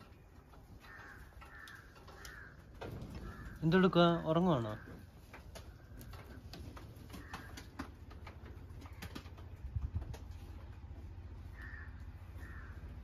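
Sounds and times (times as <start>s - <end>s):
faint bird calls: 0.0s - 8.0s, 11.2s - 13.0s.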